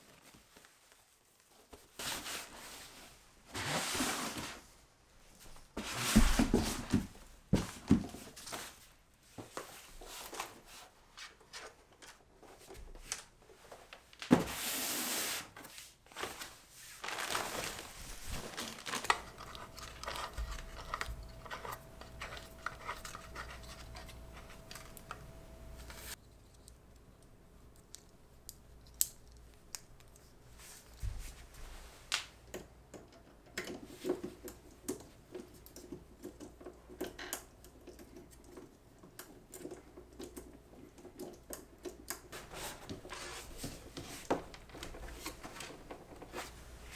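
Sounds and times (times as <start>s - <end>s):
rustling tearing and scraping: 16.1s - 26.2s.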